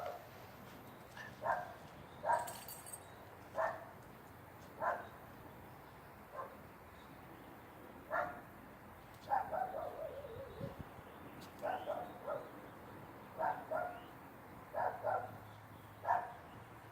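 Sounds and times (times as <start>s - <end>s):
dog barking: 0.0s - 0.3s, 1.4s - 2.6s, 3.6s - 4.0s, 4.8s - 5.2s, 6.3s - 6.6s, 8.1s - 8.5s, 9.3s - 10.4s, 11.6s - 12.6s, 13.4s - 14.1s, 14.7s - 15.4s, 16.0s - 16.4s.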